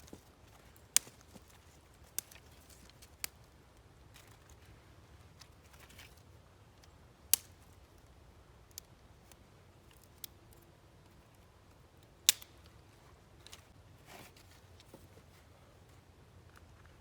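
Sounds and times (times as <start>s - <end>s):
sharp clicks or snaps: 12.3s - 12.6s.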